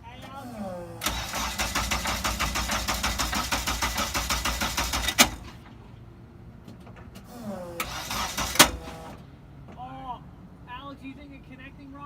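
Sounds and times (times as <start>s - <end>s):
engine running with rhythmic knocking: 1.0s - 6.0s, 6.6s - 9.3s.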